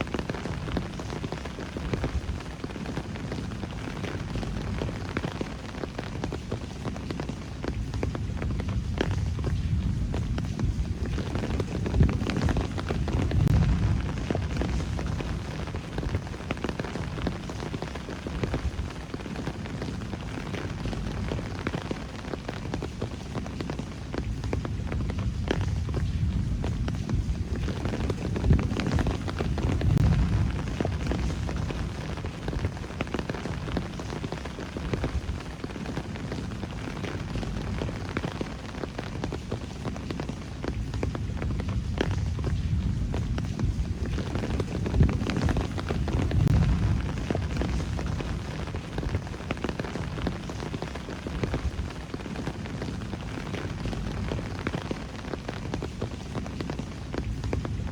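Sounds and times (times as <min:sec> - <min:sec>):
rain drops ticking: 0:00.0 - 0:57.9
deep low rumble: 0:08.2 - 0:16.3, 0:24.7 - 0:32.9, 0:41.3 - 0:49.2.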